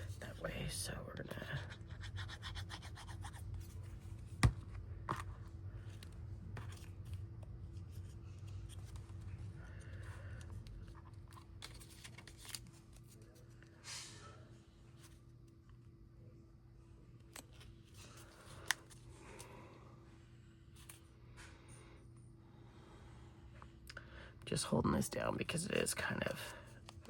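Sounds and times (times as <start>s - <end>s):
low steady hum: 0.0s - 27.0s
paper rustling: 10.8s - 13.6s.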